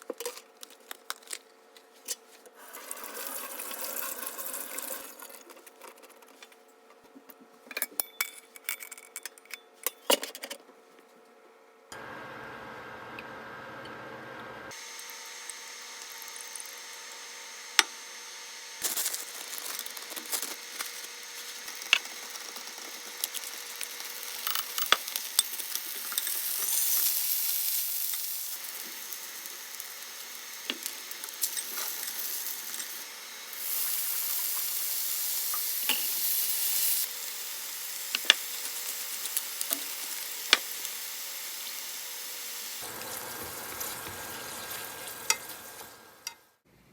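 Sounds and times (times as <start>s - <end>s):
food sizzling: 2.6s - 6.1s, 12.0s - 46.6s
utensils clicking and tapping: 18.8s - 33.0s, 38.1s - 41.0s.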